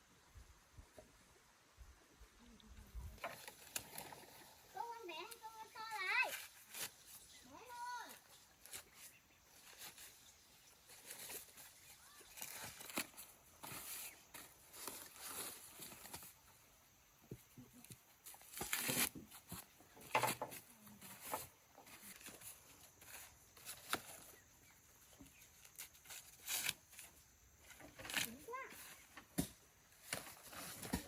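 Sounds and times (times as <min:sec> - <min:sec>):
dry corn plants rustling: 0:03.0 - 0:16.7, 0:17.4 - 0:31.0
corn plants snapping: 0:12.2 - 0:13.2.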